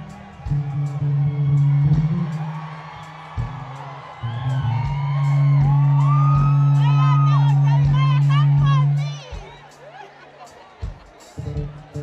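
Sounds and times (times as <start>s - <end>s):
electric bass guitar solo: 0.0s - 9.0s
audience whooping and screaming: 0.0s - 12.0s.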